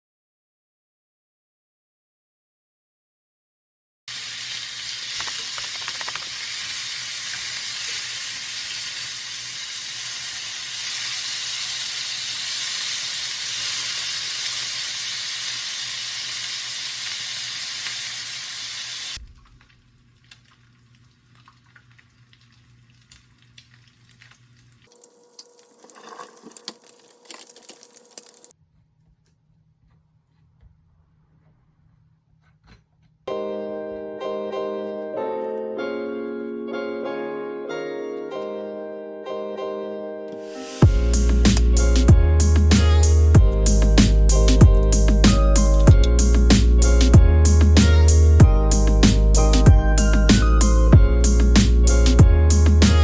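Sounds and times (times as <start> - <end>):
food sizzling in a frying pan: 4.1 - 19.2
kitchen utensils clicking: 5.1 - 6.5.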